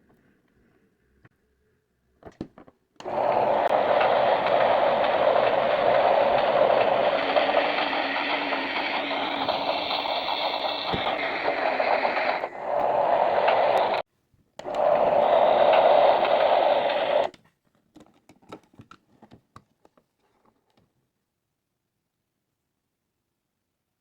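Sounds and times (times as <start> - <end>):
toy battery motor whirring: 3.0 - 14.0, 14.6 - 17.3.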